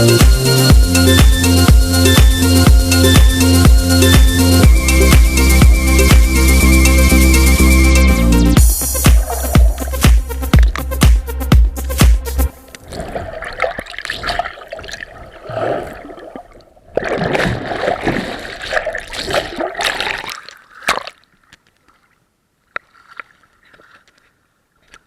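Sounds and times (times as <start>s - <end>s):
water splashing and gurgling: 8.6s - 11.3s, 12.5s - 25.0s.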